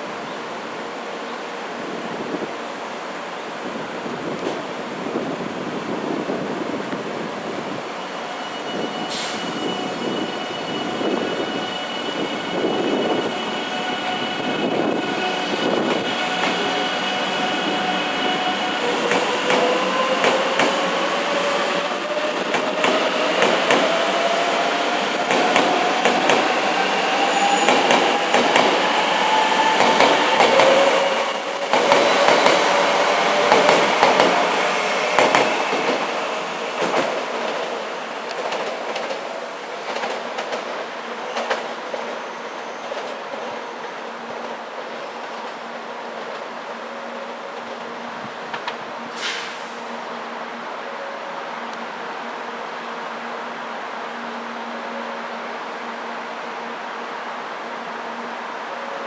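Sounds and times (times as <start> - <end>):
train running: 3.8 - 49.0.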